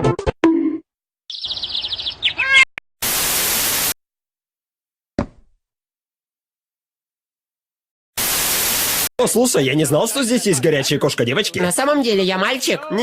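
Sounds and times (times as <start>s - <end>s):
high-pitched chirping trill: 1.3s - 2.7s
static hiss: 3.0s - 4.0s, 8.2s - 9.1s.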